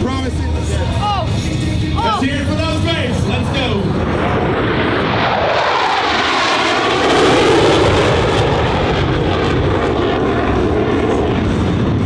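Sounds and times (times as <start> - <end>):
jet engines during low pass: 2.2 - 12.0.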